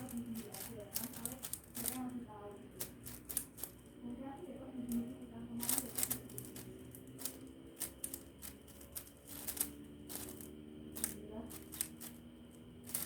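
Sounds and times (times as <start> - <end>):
puzzle cube layers clicking: 4.9 - 13.0.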